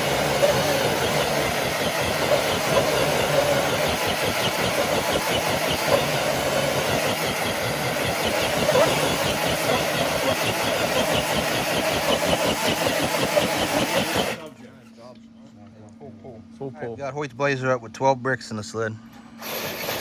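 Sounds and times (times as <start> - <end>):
electric motor whining: 0.0 - 14.5, 19.4 - 20.0.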